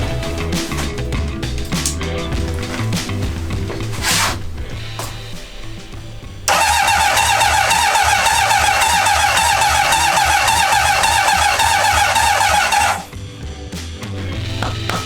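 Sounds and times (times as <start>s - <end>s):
motorcycle electric starter cranking: 4.7s - 13.1s.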